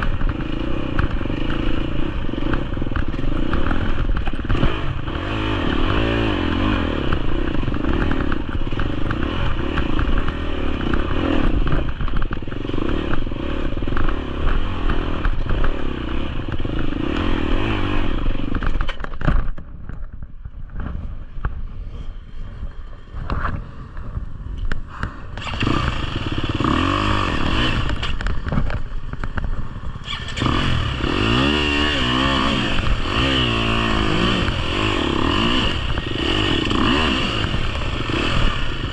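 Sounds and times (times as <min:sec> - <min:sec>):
dirt bike engine revving: 0:00.0 - 0:18.8, 0:24.9 - 0:38.9
knocks and clatters from bike: 0:00.0 - 0:21.9, 0:22.8 - 0:31.5.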